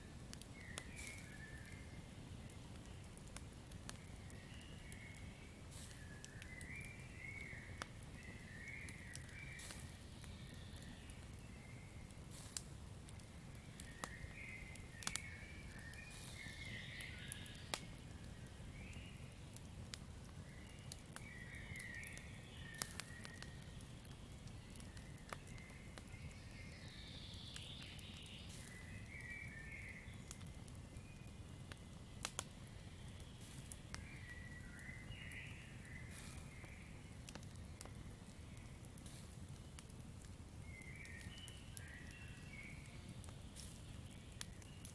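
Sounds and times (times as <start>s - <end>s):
campfire crackling and popping: 0.0s - 44.9s.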